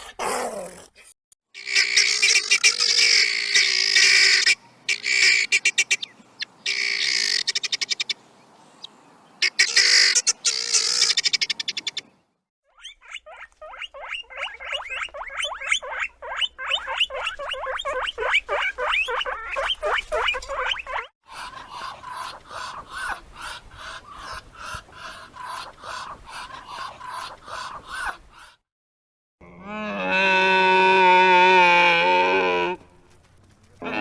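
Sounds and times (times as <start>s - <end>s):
animal shrill squeals: 1.6s - 5.6s, 9.4s - 11.2s.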